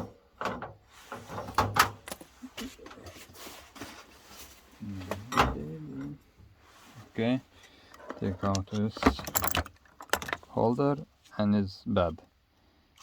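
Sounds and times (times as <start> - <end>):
rubbing and scraping: 0.8 - 5.2.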